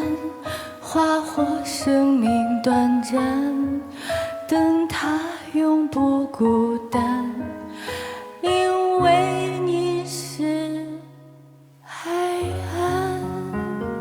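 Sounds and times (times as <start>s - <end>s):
woman singing pop ballad with band: 0.0s - 7.5s.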